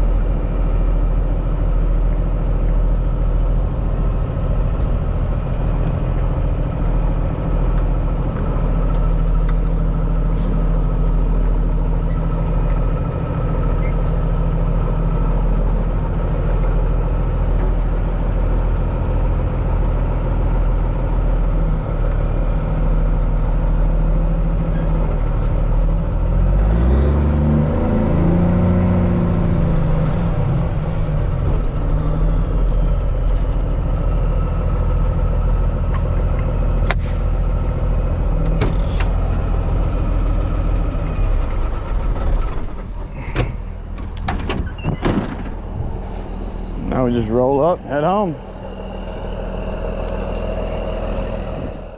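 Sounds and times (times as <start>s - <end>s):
diesel truck engine idling: 0.0s - 51.9s
engine rising and falling in pitch: 25.8s - 51.9s.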